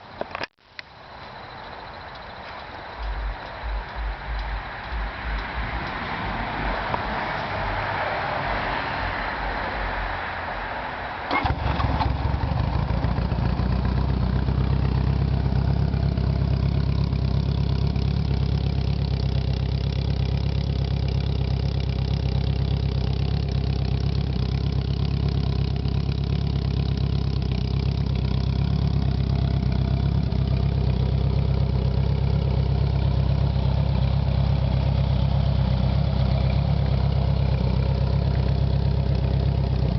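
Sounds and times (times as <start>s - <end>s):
motorcycle engine idling: 3.0s - 6.0s, 11.3s - 39.9s
motorcycle engine starter cranking: 11.3s - 12.4s.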